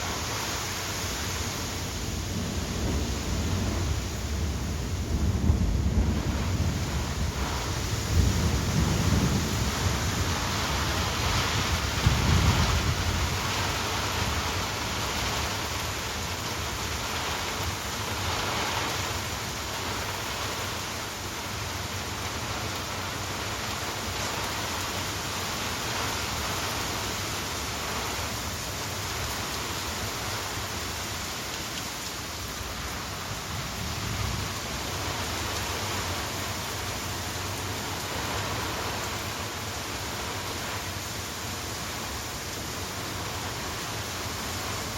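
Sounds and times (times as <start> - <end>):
rain falling steadily: 0.0 - 44.9
deep low thunder rumbles: 2.0 - 14.4.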